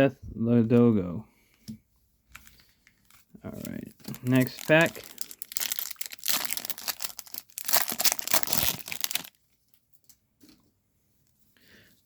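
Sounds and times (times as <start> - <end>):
foil wrapper crinkling: 2.3 - 9.4.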